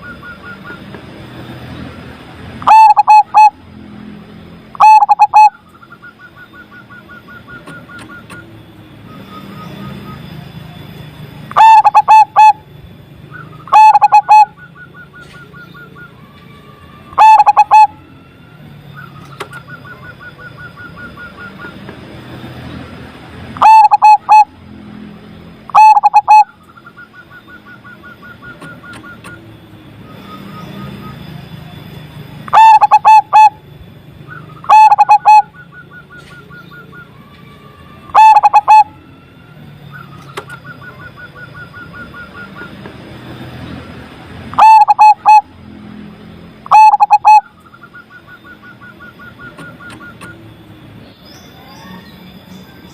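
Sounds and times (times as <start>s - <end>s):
dove cooing: 2.6s - 3.6s, 4.7s - 5.6s, 11.5s - 12.6s, 13.7s - 14.6s, 17.2s - 18.0s, 23.6s - 24.6s, 25.7s - 29.2s, 32.5s - 33.6s, 34.3s - 36.9s, 38.1s - 38.9s, 44.5s - 45.5s, 46.6s - 50.4s.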